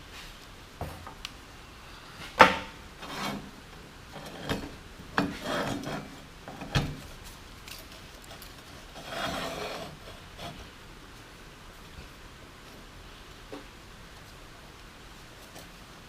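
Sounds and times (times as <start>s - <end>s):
metal rubbing and scraping: 3.0s - 3.5s, 4.1s - 6.8s, 7.9s - 10.7s.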